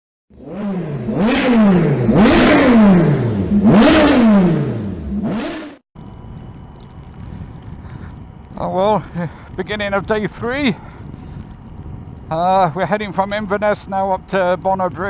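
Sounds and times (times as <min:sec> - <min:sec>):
motorcycle engine revving: 0:00.3 - 0:05.8.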